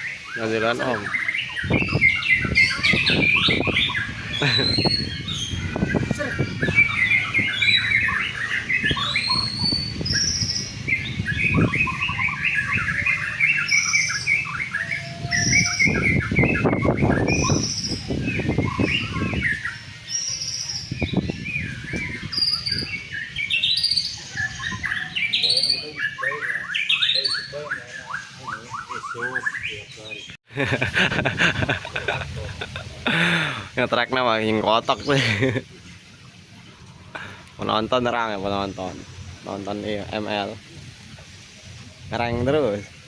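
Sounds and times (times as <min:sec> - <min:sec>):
bird singing chirps and whistles: 0:00.0 - 0:30.4.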